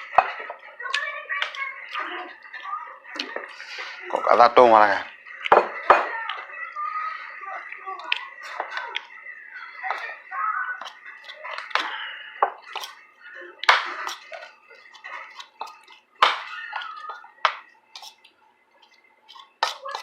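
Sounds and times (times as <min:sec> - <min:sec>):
wet chewing: 0:00.0 - 0:04.2, 0:10.8 - 0:20.0
utensils clicking on dishes: 0:10.8 - 0:13.0, 0:13.6 - 0:20.0.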